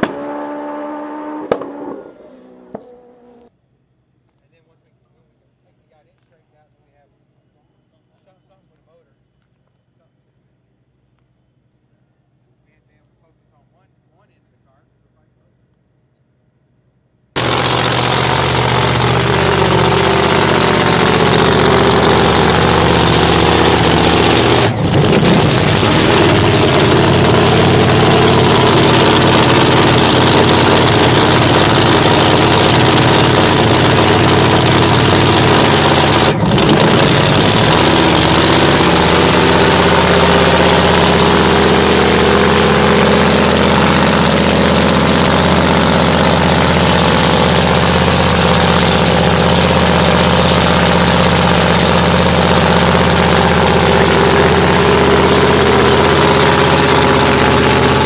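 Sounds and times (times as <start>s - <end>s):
drag racing engine idling loudly: 17.4s - 58.0s.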